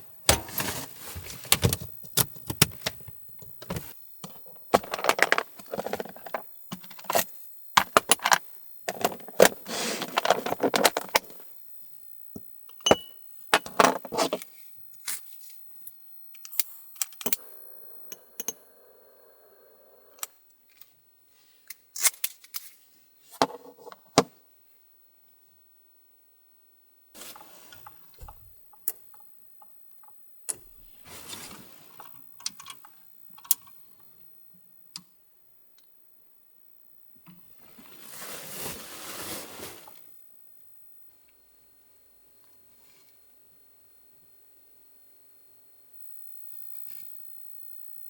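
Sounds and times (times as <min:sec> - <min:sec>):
small hard objects rattling and clinking: 0:04.7 - 0:07.1.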